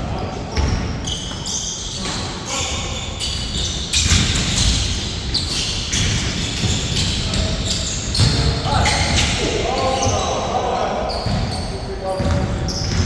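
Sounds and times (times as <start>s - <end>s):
shoe squeaks: 0.1s - 13.0s
basketball bouncing on court: 0.5s - 1.4s, 5.9s - 10.3s, 11.1s - 13.0s.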